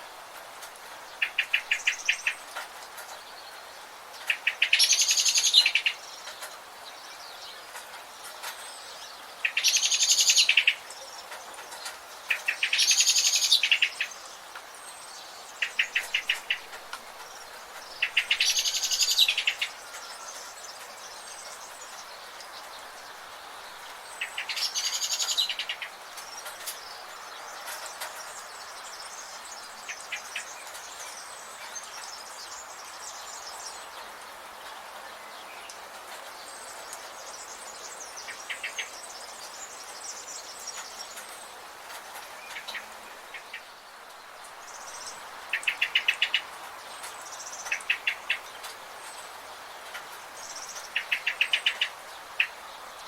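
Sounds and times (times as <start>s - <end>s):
forest ambience hiss: 0.0s - 53.0s
songbird trilling song: 1.1s - 35.8s, 36.4s - 53.0s.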